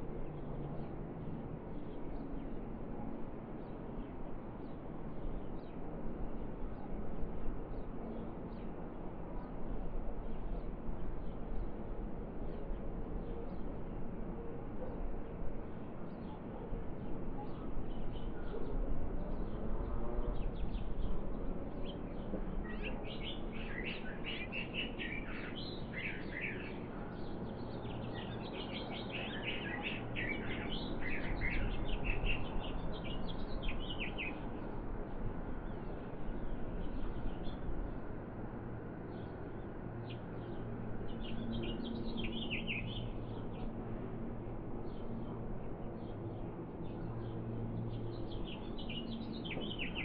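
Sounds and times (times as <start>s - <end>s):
small birds chirping: 21.9s - 34.8s, 39.1s - 43.7s, 46.9s - 50.0s.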